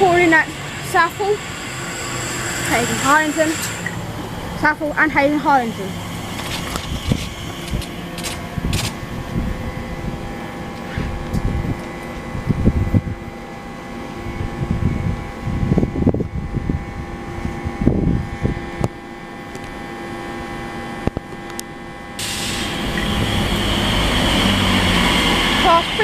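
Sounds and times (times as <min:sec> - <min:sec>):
loud rushing noise: 0:00.0 - 0:11.7, 0:22.2 - 0:26.0
wind buffeting microphone: 0:00.0 - 0:13.4, 0:14.2 - 0:19.0
electric train whining: 0:00.0 - 0:26.0.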